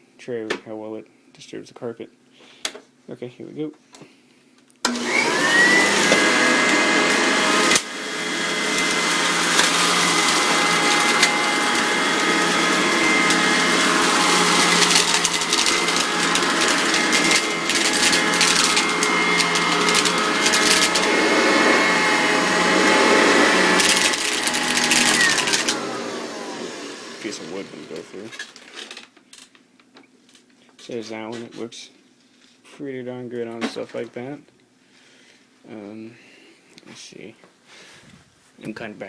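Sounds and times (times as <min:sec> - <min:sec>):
vacuum cleaner running: 0:04.9 - 0:28.4.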